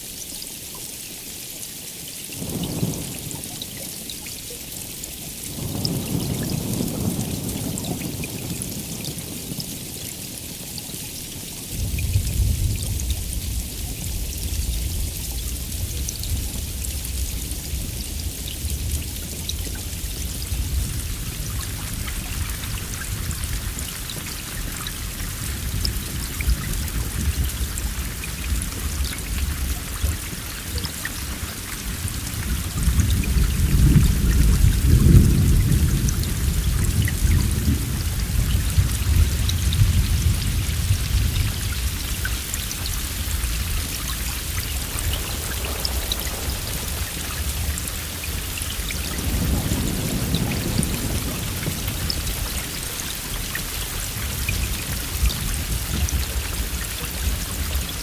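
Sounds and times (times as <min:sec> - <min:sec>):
heavy rain: 0:00.0 - 0:58.0
thunder rumbling: 0:05.5 - 0:10.0, 0:11.7 - 0:58.0.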